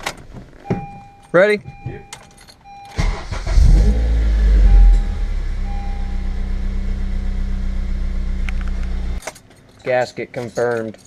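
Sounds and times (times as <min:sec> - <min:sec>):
car engine starting and idling: 0:01.7 - 0:09.2.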